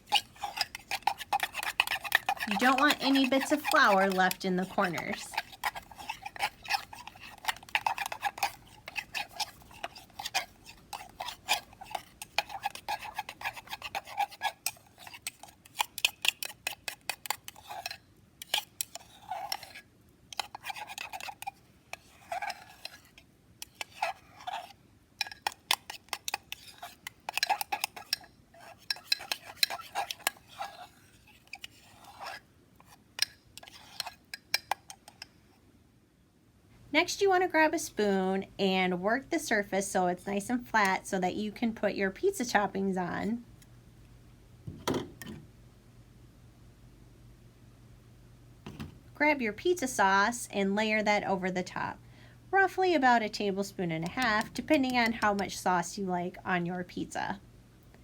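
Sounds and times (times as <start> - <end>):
knife scraping batter in mug: 0.0 - 35.3, 53.7 - 55.6.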